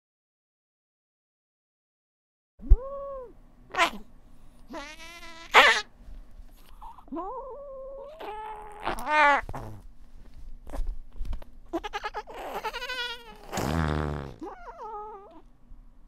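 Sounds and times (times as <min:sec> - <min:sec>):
cats yowling: 0:04.7 - 0:05.9, 0:07.1 - 0:09.5.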